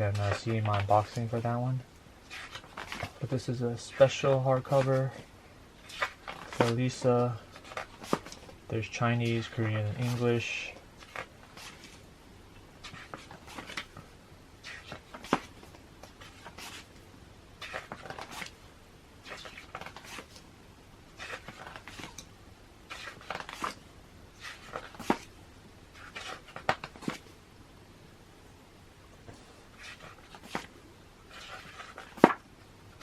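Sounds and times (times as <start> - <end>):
magazine pages turning: 0.1 - 12.0, 12.8 - 17.0, 17.6 - 18.6, 19.2 - 20.5, 21.1 - 22.3, 22.9 - 23.8, 24.4 - 25.3, 26.0 - 27.3, 29.2 - 33.0.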